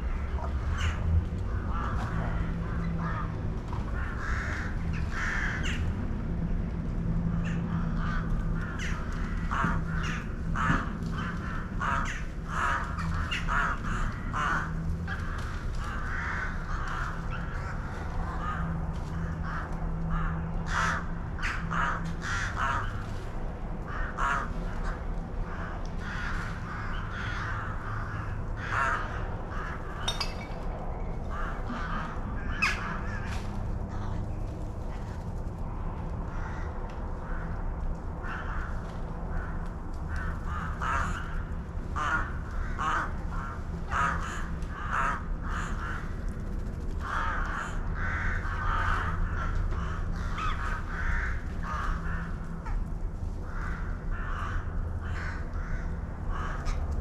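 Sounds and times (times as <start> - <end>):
birds calling: 25.6 - 34.5.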